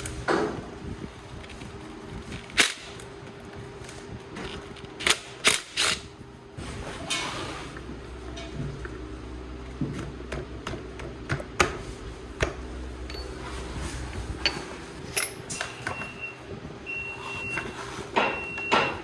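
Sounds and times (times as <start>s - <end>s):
steady low hum: 0.0s - 19.0s
metal tools clicking and clinking: 13.0s - 16.2s.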